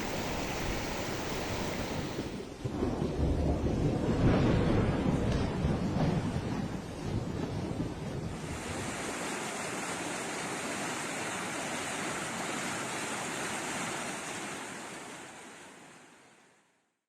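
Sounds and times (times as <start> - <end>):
rushing water: 0.0 - 2.5, 8.3 - 16.6.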